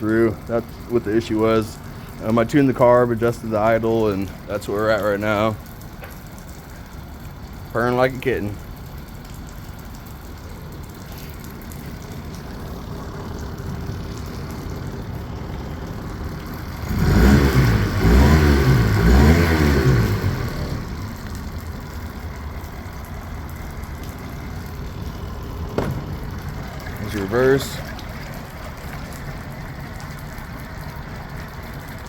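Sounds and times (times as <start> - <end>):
outboard motor idling and revving: 9.6 - 32.0.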